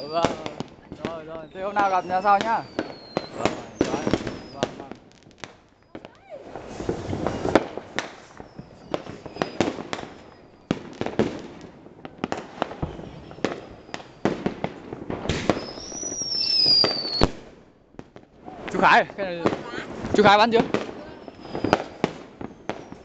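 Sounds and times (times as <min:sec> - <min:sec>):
high descending firework whistle: 0:00.0 - 0:05.0, 0:05.8 - 0:11.0, 0:12.7 - 0:14.3, 0:15.3 - 0:17.4, 0:20.2 - 0:23.0
firecrackers banging: 0:00.0 - 0:23.0
fireworks crackling: 0:00.0 - 0:23.0.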